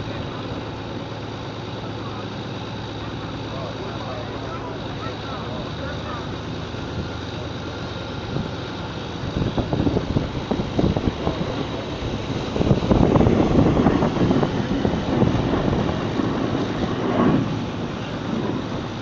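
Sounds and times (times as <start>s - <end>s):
truck engine at full throttle: 0.0s - 19.0s
wind on microphone: 9.2s - 19.0s.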